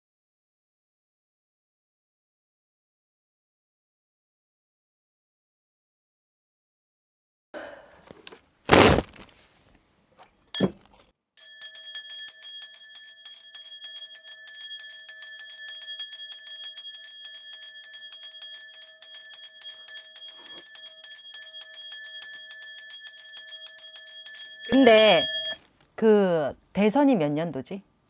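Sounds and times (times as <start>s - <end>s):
brass bells jingling: 11.4s - 25.8s.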